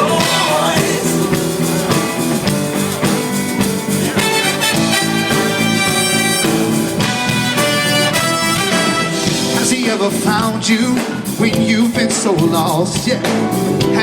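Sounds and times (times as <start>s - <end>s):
horn section playing chords: 0.0s - 9.8s
live pop-rock band: 0.0s - 14.0s.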